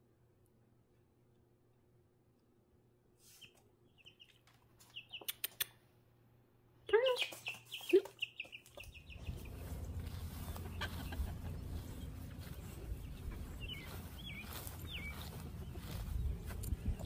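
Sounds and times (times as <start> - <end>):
bird chirping: 3.3 - 5.8, 6.9 - 17.0
low rumble: 8.9 - 17.0.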